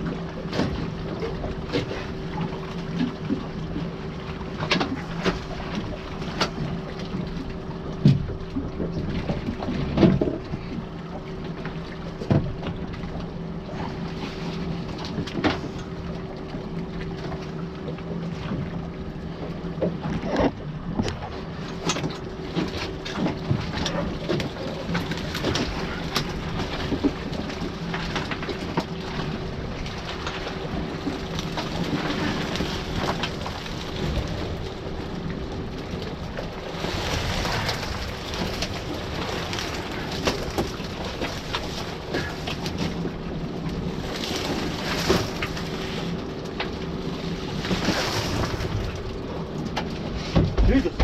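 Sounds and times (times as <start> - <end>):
boat motor running: 0.0 - 51.0
water surging: 23.7 - 43.2.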